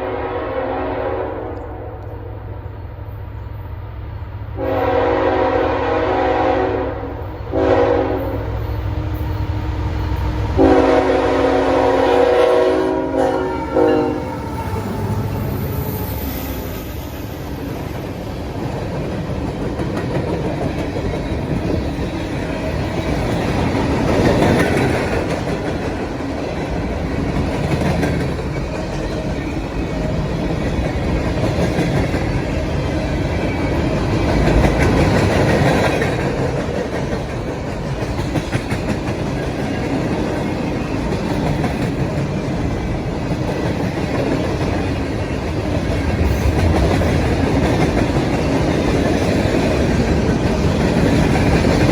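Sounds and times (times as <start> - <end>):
freight train wheels rumbling on rails: 0.0 - 51.9.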